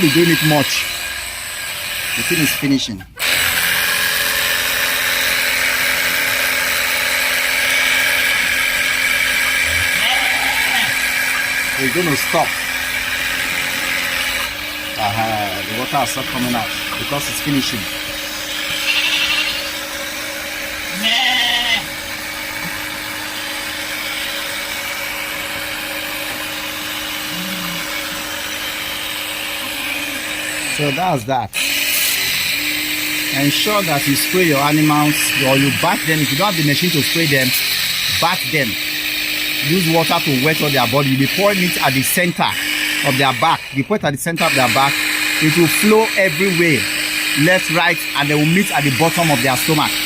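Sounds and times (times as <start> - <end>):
electric sprayer pump whining: 0.0 - 50.0
goat bleating: 9.6 - 11.1, 18.6 - 19.8, 20.9 - 21.9.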